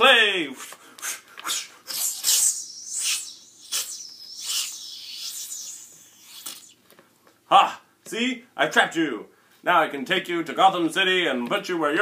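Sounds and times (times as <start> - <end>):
hissing whooshing sweeps: 1.5 - 6.8.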